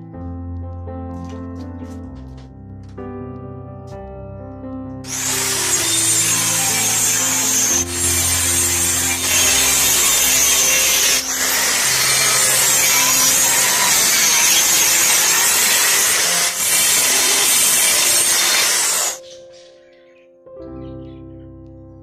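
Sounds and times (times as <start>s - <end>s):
saw cutting through wood: 5.1s - 19.2s.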